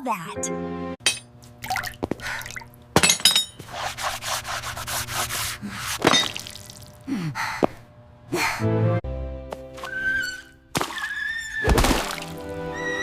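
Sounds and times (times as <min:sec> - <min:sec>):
rapid rubbing strokes: 0:03.7 - 0:06.0.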